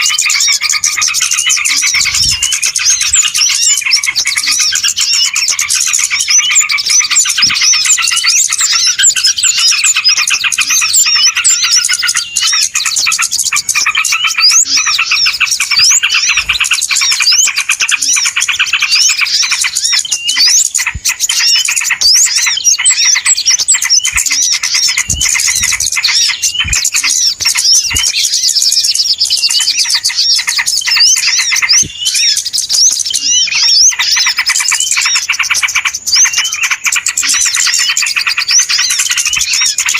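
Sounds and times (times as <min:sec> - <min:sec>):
many small birds chirping: 0:00.0 - 0:39.9.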